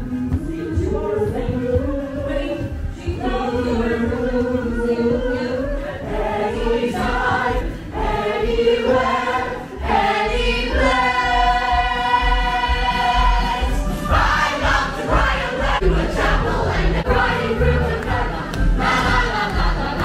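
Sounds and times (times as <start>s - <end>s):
ensemble singing show tune: 0.0s - 20.0s
musical accompaniment: 0.0s - 20.0s.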